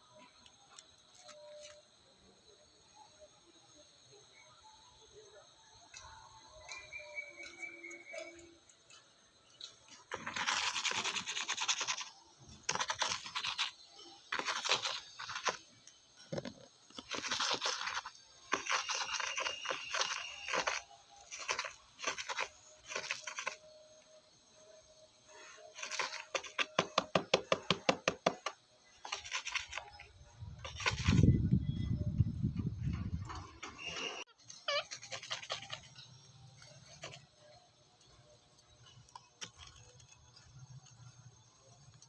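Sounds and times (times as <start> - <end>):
beak rustling dry rice: 9.9 - 16.0, 16.9 - 23.8, 25.4 - 27.0, 29.0 - 30.0, 30.6 - 31.2, 34.4 - 37.4.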